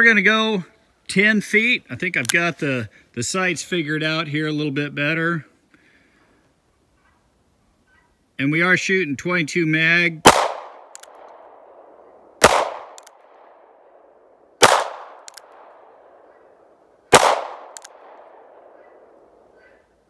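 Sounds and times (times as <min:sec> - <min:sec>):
revolver gunshots: 0:10.2 - 0:14.0, 0:14.6 - 0:19.5.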